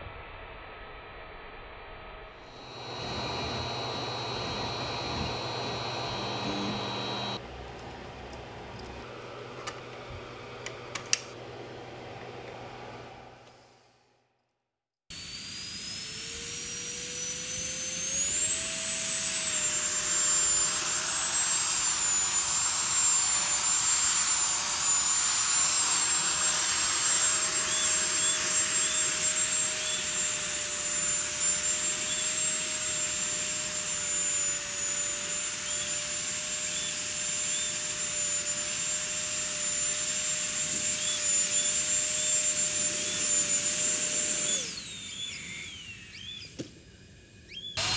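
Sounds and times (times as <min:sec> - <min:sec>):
electric fan whine: 0:02.6 - 0:13.4.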